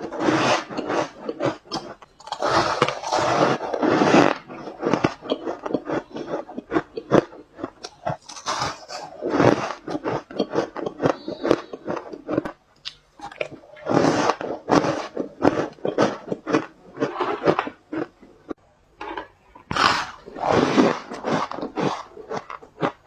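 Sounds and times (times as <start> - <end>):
ice crunched between teeth: 0.0 - 11.2.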